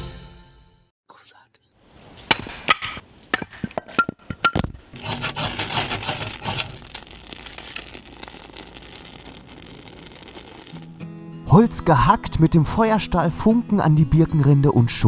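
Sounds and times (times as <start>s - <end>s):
rough scraping and crackling: 4.8s - 11.1s.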